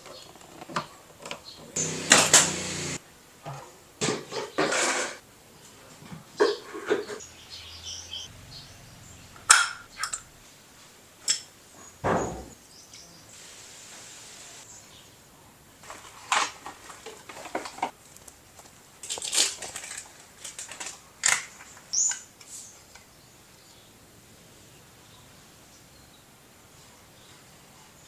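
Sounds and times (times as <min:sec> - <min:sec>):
soft hiss: 0:12.7 - 0:15.0.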